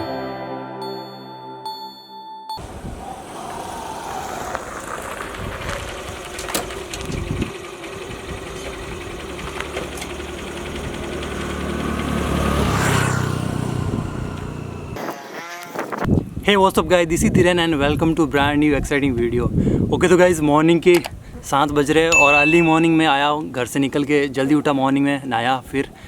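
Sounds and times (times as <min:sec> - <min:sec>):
vehicle engine passing: 0:02.6 - 0:15.0.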